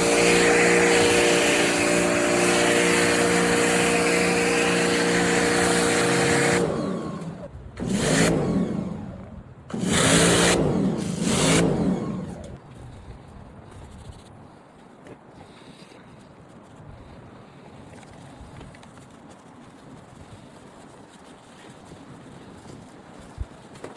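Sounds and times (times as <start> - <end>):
water spray hissing: 0.0 - 6.8
pressure washer motor hum: 0.0 - 12.6.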